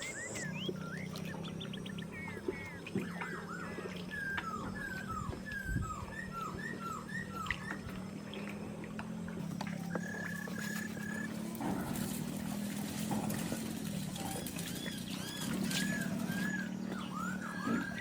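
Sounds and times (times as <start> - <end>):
bird whistling calls: 0.0 - 8.4, 9.8 - 11.9, 14.2 - 18.0
low hum: 0.0 - 18.0.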